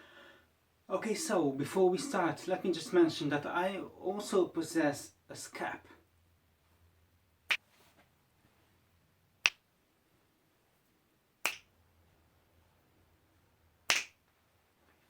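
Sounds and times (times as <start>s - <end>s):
short sharp clicks: 11.4s - 11.7s, 13.9s - 14.2s.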